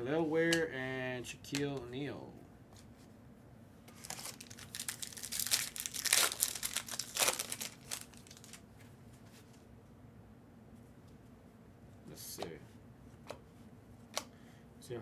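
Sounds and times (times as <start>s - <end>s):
foil wrapper crinkling and tearing: 3.9s - 8.6s.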